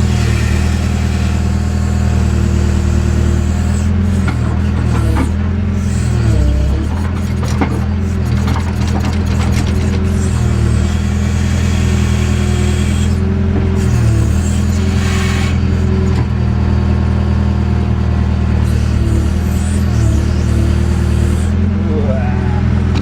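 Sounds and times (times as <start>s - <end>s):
diesel engine under load: 0.0s - 23.0s
scraping clatter: 6.1s - 10.4s
hydraulic whine shifting pitch: 18.7s - 23.0s.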